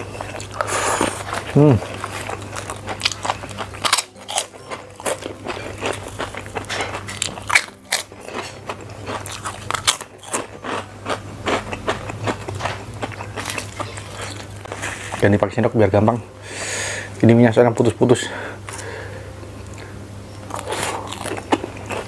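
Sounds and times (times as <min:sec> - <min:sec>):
chewing crunchy crackers: 0:00.0 - 0:15.2, 0:20.4 - 0:22.0.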